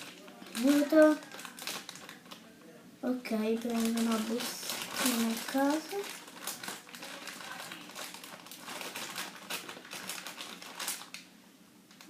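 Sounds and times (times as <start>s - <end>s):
plastic packet crinkling: 0.0s - 2.5s, 3.2s - 11.3s.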